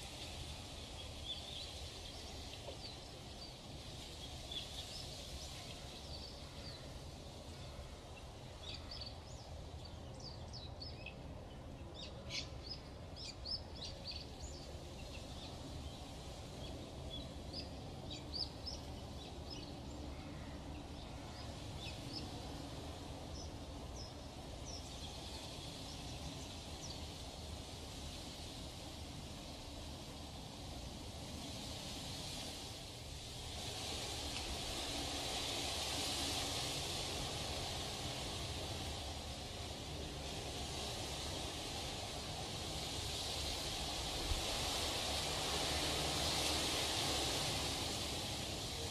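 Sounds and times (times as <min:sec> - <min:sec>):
small birds chirping: 0:00.0 - 0:30.3.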